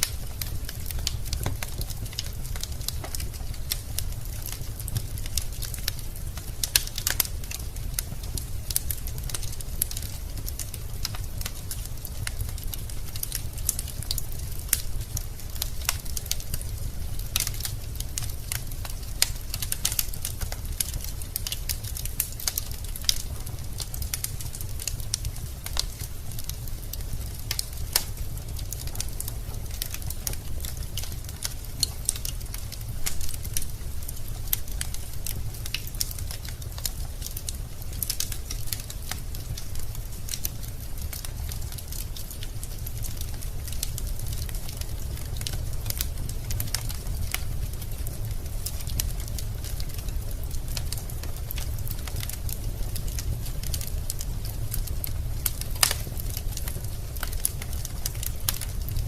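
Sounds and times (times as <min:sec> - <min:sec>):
logs crackling and popping: 0:00.0 - 0:59.0
low fire rumble: 0:00.0 - 0:59.0.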